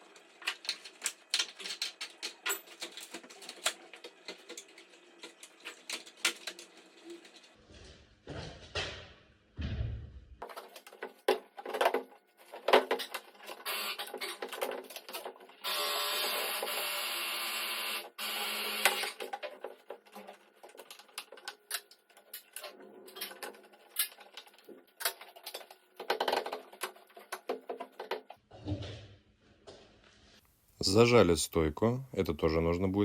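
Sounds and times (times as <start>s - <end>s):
power tool whirring: 13.6s - 14.3s, 15.6s - 19.3s.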